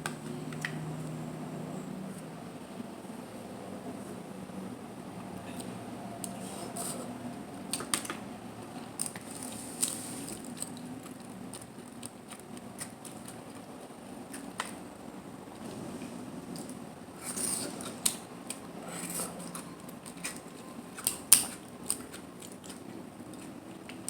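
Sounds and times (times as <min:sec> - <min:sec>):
chewing shellfish: 0:07.7 - 0:15.0, 0:16.6 - 0:24.0.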